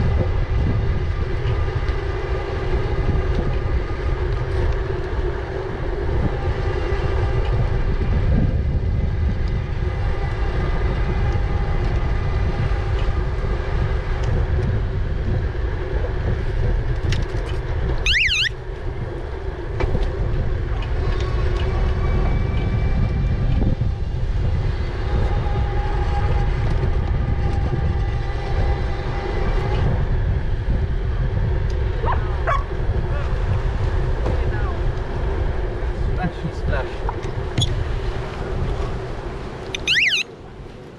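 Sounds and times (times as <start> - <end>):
wind rumble on microphone: 0.0 - 40.9
wavering high-pitched tone: 18.1 - 18.5, 39.8 - 40.2.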